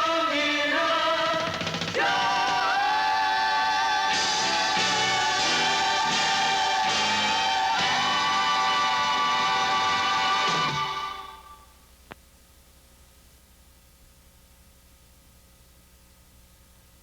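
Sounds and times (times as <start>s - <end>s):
choir singing held notes: 0.0s - 11.7s
band playing pulsing beat: 1.1s - 3.0s, 4.1s - 11.3s.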